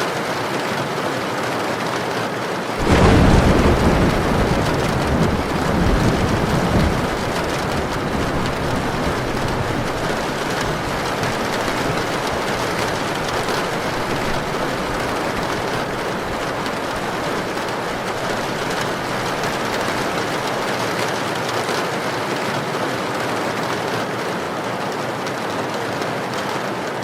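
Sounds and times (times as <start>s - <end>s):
heavy rain: 0.0s - 27.0s
strong wind: 2.8s - 20.8s.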